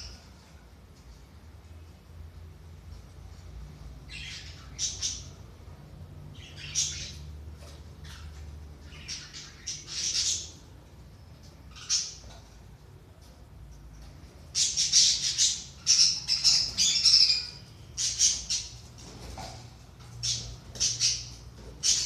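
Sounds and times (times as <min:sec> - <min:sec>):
budgerigars chirping: 0:04.1 - 0:05.4, 0:06.3 - 0:07.3, 0:08.0 - 0:10.6, 0:11.7 - 0:12.4, 0:14.5 - 0:18.9, 0:20.2 - 0:22.0.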